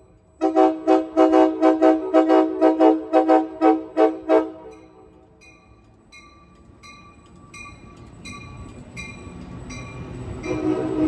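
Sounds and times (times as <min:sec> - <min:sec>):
low rumble of train wheels: 0:00.0 - 0:11.0
train bell ringing: 0:04.7 - 0:11.0.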